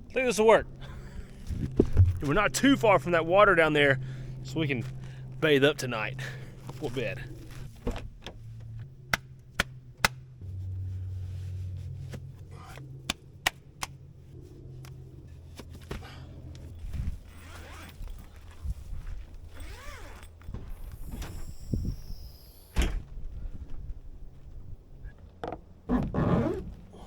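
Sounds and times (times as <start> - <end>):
low steady hum: 0.0 - 22.4
footsteps: 1.4 - 2.4.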